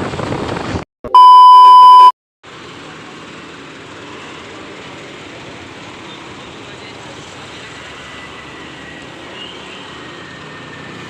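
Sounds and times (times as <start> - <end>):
road and wind noise: 0.0 - 11.0
electronic censor beep: 1.1 - 2.1.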